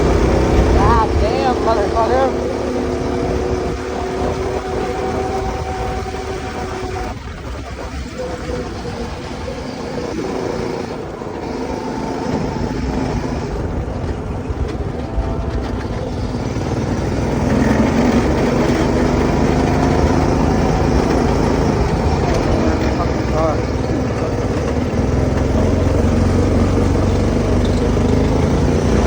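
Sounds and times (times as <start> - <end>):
go-kart engine running: 0.0 - 29.0.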